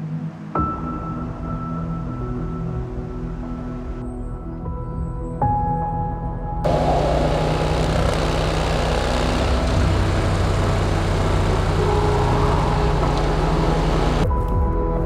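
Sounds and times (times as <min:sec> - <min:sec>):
motorcycle engine running: 0:06.7 - 0:14.2.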